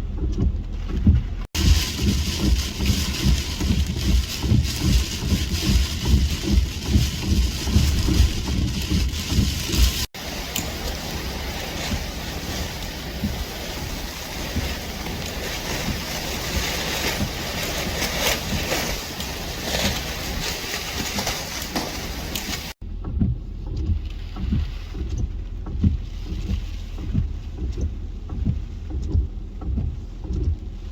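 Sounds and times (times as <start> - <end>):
wind buffeting on microphone: 0.1 - 30.9
strong storm wind: 1.5 - 22.8
crashing surf: 1.6 - 22.8.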